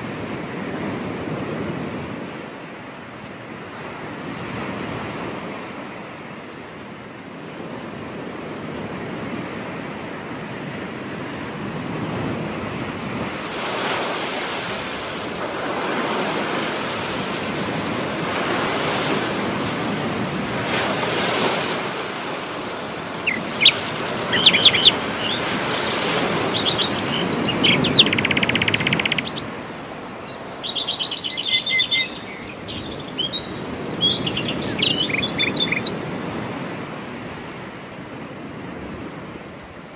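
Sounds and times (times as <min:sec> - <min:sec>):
ocean surf breaking on beach: 0:00.0 - 0:39.9
small birds chirping: 0:21.9 - 0:36.4
buzzy bird trill: 0:22.1 - 0:36.2.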